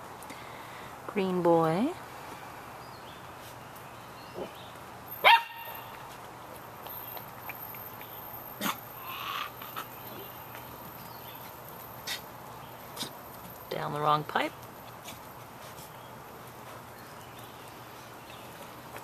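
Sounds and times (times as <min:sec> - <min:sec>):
puppy yapping: 0:05.2 - 0:05.9.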